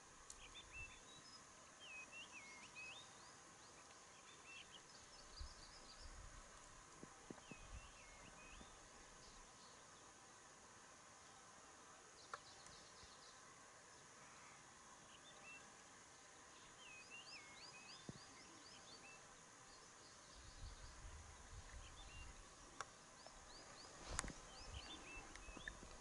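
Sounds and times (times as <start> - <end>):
faint hiss: 0.0 - 26.0
bird chirps: 23.2 - 26.0.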